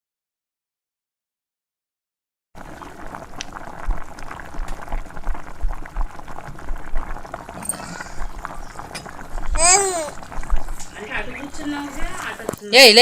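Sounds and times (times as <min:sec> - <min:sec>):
curry bubbling in pot: 0:02.6 - 0:12.6.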